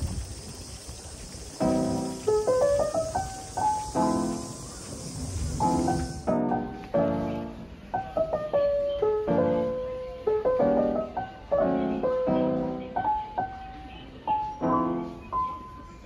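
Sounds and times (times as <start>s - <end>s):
gentle lo-fi piano melody: 1.3s - 16.0s.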